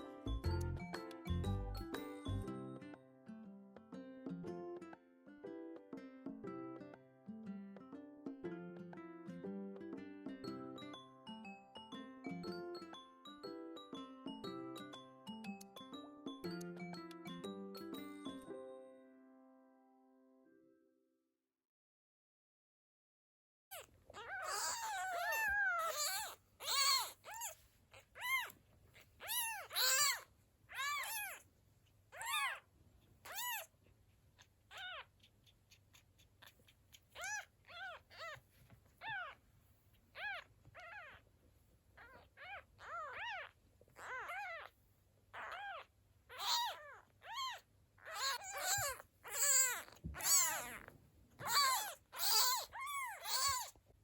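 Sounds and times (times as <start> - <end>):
kitten mewing: 23.7 - 31.5, 32.1 - 33.8, 34.4 - 39.4, 40.0 - 41.2, 42.0 - 53.8.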